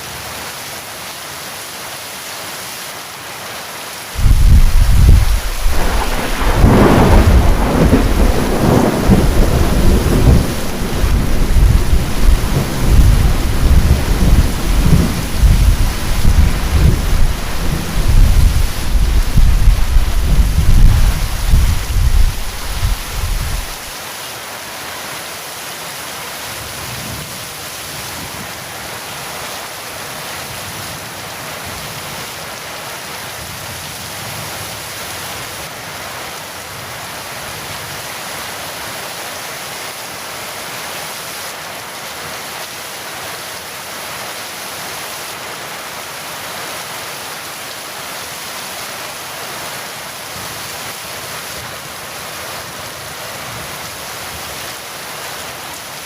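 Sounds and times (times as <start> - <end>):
heavy rain falling: 0.0 - 56.0
low thunder rumble: 4.2 - 23.9.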